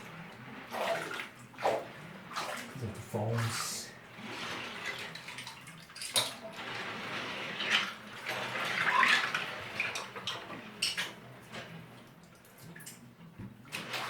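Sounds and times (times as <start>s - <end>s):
hands sloshing through water: 0.7s - 4.0s.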